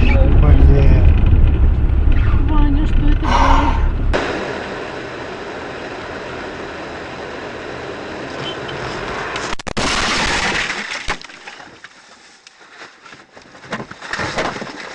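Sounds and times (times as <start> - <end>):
car driving: 0.0 - 11.0
car crash impact: 9.1 - 11.8.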